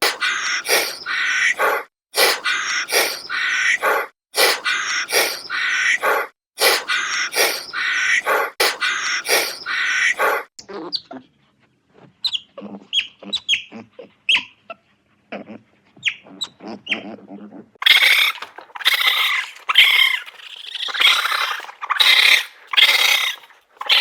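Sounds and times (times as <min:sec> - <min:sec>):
animal crying loudly: 0:00.0 - 0:10.5, 0:17.8 - 0:24.0.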